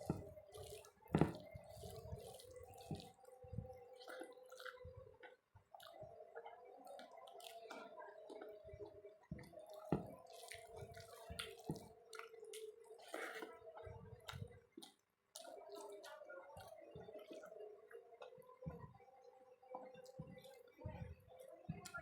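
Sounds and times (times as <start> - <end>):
chewing and wet squishing: 0.0 - 22.0
soft thumps: 1.1 - 1.6, 9.3 - 10.2.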